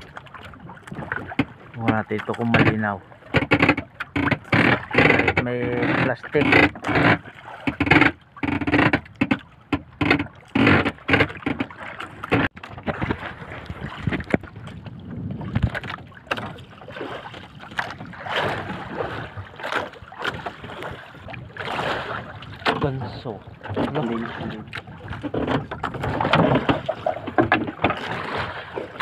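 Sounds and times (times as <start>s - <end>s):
water slapping against boat hull: 0.0s - 29.0s
sharp knocks and bumps: 1.3s - 13.2s, 25.1s - 28.1s.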